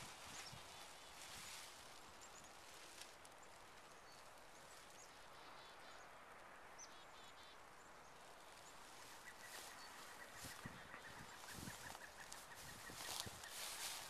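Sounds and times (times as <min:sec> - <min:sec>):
distant bird chirps: 0:03.3 - 0:14.0.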